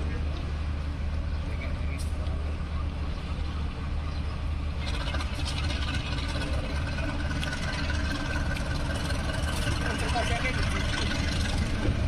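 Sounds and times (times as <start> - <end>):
diesel train drone: 0.0 - 12.0
train rattling and clicks: 3.4 - 12.0.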